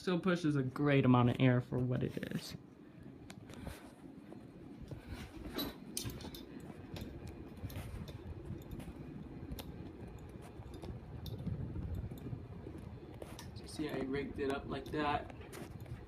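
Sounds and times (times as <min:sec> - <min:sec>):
ceiling fan motor hum: 0:00.0 - 0:16.0
person talking: 0:13.5 - 0:15.4.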